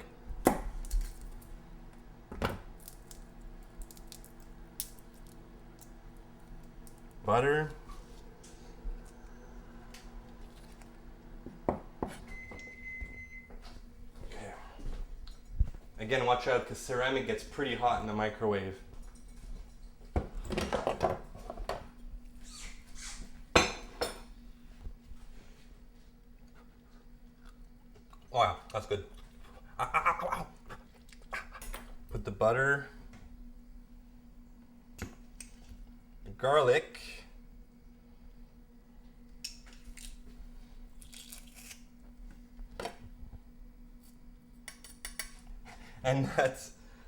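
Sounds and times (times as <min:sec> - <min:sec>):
microwave humming: 0:00.0 - 0:19.0.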